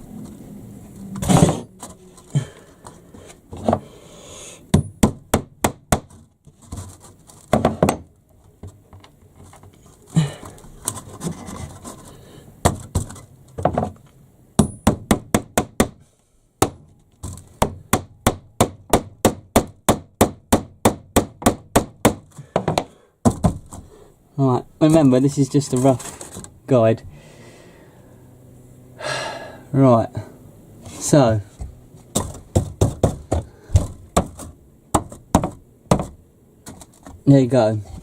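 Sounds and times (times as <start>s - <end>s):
wood scraping: 0.0s - 4.1s, 6.0s - 14.2s, 24.8s - 26.6s, 30.8s - 38.0s
hammer striking wood: 4.7s - 6.3s, 7.5s - 8.1s, 14.6s - 16.0s, 16.6s - 23.7s, 32.1s - 36.2s.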